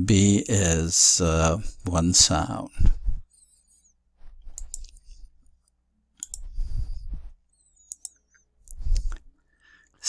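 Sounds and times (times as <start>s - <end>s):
clicks: 4.5s - 6.5s, 7.8s - 9.2s.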